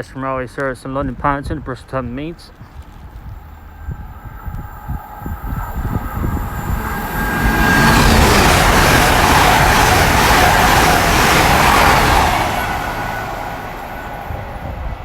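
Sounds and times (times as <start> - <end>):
train passing at speed: 3.1 - 15.0.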